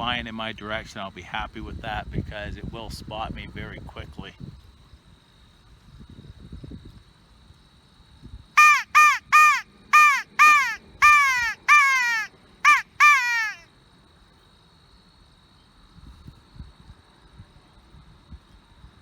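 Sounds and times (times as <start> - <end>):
crow call caws falling in pitch: 8.6 - 13.6.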